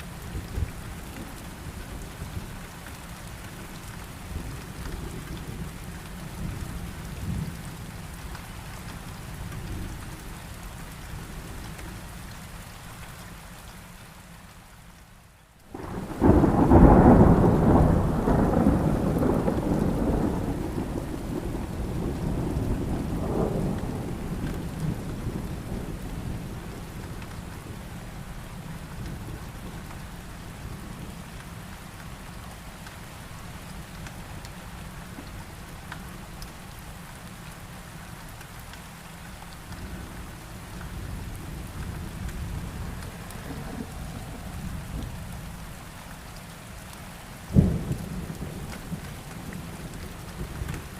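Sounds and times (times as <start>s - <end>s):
steady rain: 0.0s - 50.9s
thunder rumbling: 15.7s - 27.8s, 40.9s - 45.8s, 47.5s - 50.9s.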